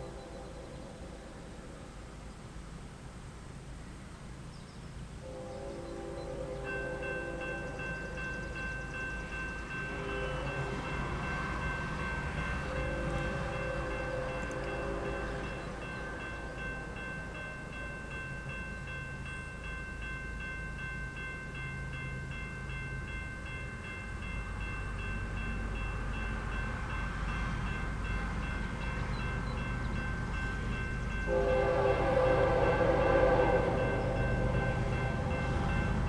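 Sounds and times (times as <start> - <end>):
locomotive engines rumbling: 0.0 - 36.0
train horn: 5.2 - 8.6, 9.4 - 18.6, 31.2 - 36.0
steady ringing bell: 6.7 - 31.9, 32.6 - 36.0.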